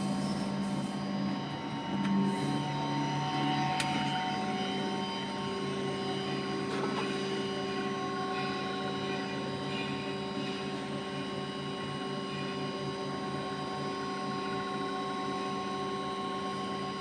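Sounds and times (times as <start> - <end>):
machine mechanical hum: 0.0 - 17.0
machine whining tones: 0.0 - 17.0.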